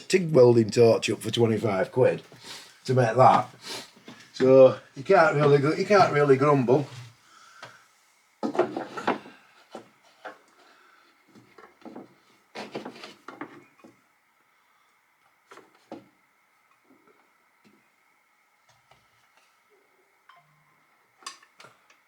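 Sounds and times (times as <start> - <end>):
knocks and clatter on wood: 8.4 - 10.4, 11.4 - 14.0.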